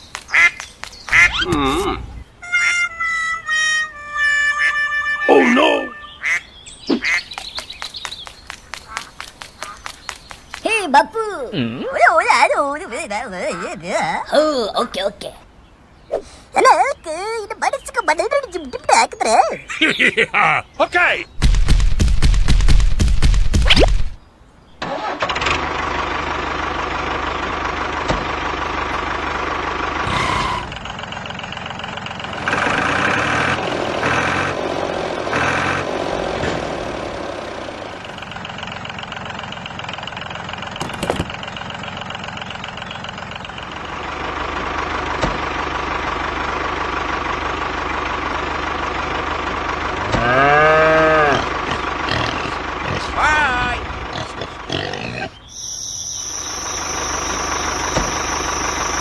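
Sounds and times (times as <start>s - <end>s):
engine running with constant hum: 0.0s - 10.6s, 24.8s - 59.0s
rising-and-falling call: 1.1s - 7.1s, 55.2s - 59.0s.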